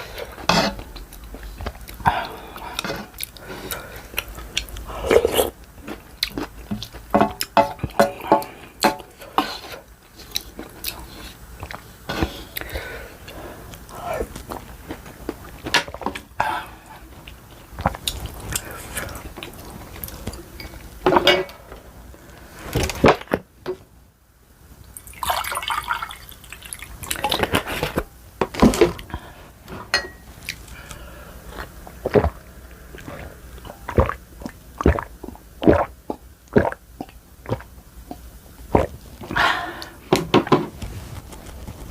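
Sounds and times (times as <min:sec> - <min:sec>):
chewing: 0:00.8 - 0:08.6, 0:09.6 - 0:15.7, 0:17.0 - 0:20.9
slurping noodles: 0:01.8 - 0:05.6, 0:31.5 - 0:34.2, 0:38.7 - 0:39.4.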